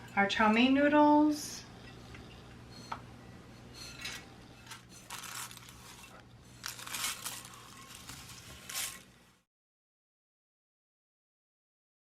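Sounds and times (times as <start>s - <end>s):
dry noodles rustling and crunching: 4.6s - 9.4s.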